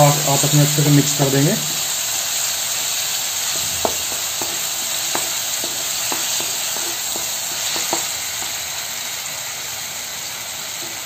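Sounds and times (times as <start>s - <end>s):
vegetables sizzling in hot oil: 0.0s - 11.0s
spatula scraping a pan: 3.6s - 8.6s.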